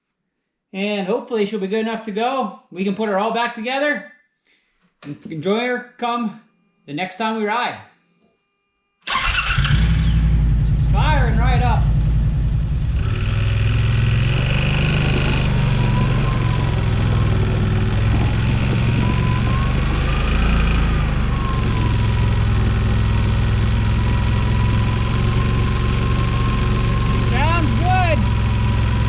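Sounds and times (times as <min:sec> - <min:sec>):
engine running: 0:09.1 - 0:29.0.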